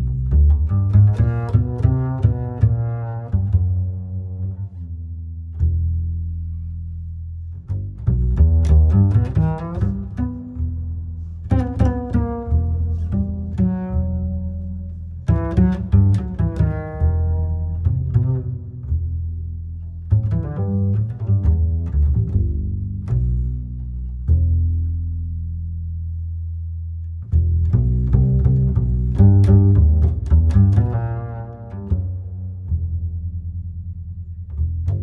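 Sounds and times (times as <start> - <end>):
sustained deep bass line: 0.0 - 35.0
plucked string notes: 7.7 - 19.2, 27.2 - 33.7.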